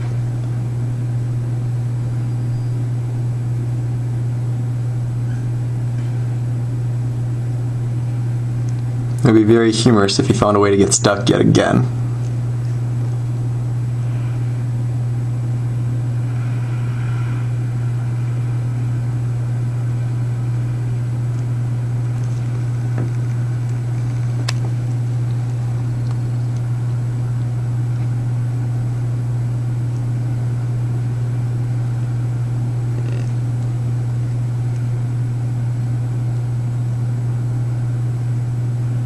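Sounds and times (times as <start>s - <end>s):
truck engine idling: 17.5s - 27.3s.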